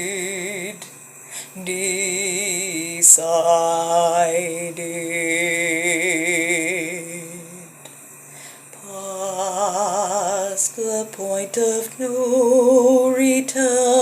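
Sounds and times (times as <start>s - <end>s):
solo singer with vibrato: 0.0s - 7.9s, 8.7s - 14.0s
singer's quick breath: 1.2s - 1.6s.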